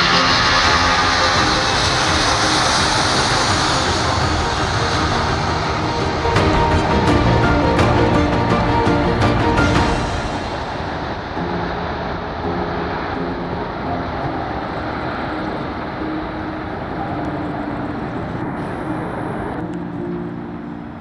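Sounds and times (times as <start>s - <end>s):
jet engine roar: 0.0s - 19.7s.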